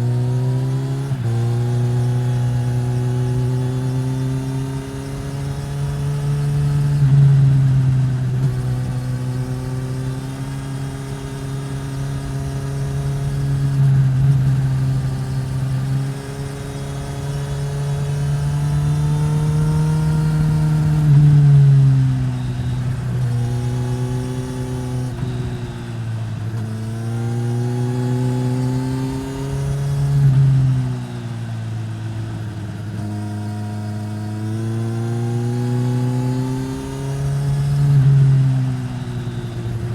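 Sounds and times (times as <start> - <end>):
motorcycle engine under throttle: 0.0 - 39.9.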